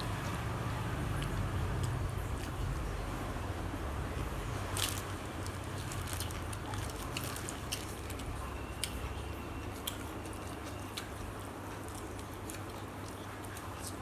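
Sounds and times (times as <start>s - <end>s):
low background hum: 0.0s - 14.0s
person chewing food: 4.6s - 14.0s.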